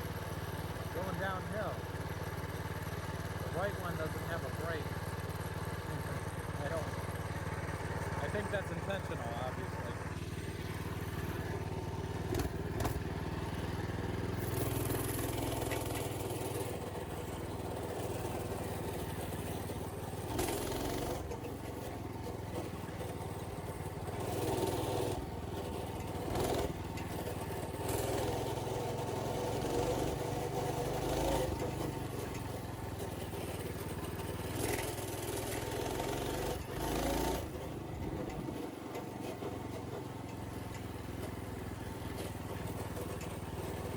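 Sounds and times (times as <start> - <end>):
small engine running: 0.0 - 43.9
knocks and rattles from bumps: 3.4 - 43.9.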